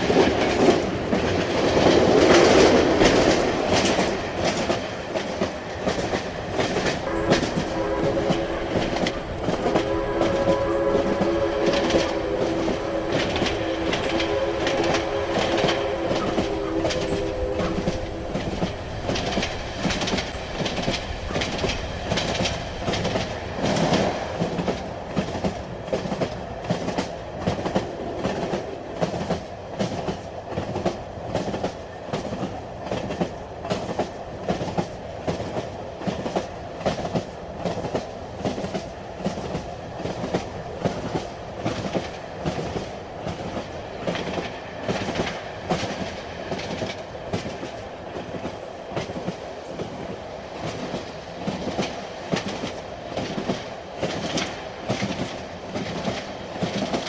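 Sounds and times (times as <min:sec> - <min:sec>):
train rumbling with clickety-clack: 0:00.0 - 0:57.0
short tone: 0:07.1 - 0:19.4.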